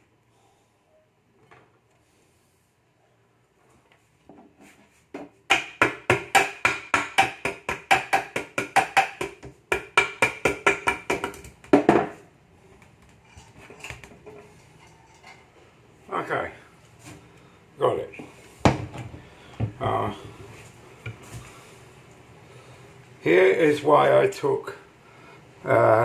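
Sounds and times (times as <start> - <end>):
hammer tapping on engine casing: 5.5 - 11.9.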